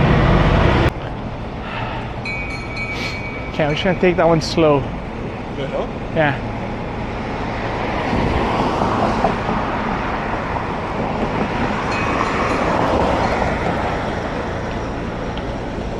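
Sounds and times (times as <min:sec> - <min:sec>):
bicycle road noise: 0:00.0 - 0:15.9
rushing wind on microphone: 0:07.5 - 0:14.3.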